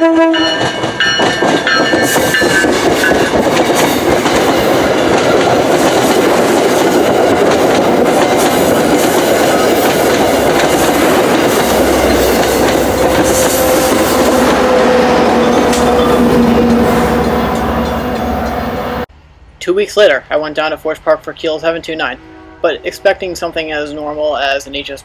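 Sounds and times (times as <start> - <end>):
train wheels rumbling on rails: 0.0 - 19.1
clickety-clack over rail joints: 0.2 - 18.8.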